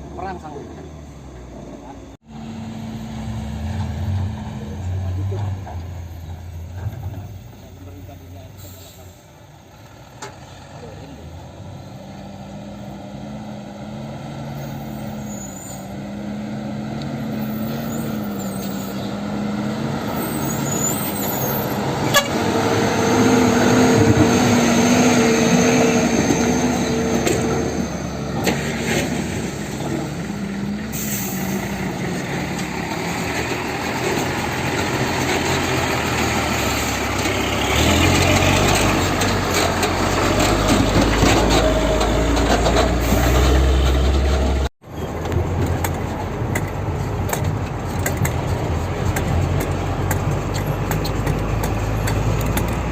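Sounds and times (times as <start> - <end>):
brakes squealing: 0.0 - 52.9
diesel truck engine running: 16.0 - 52.9.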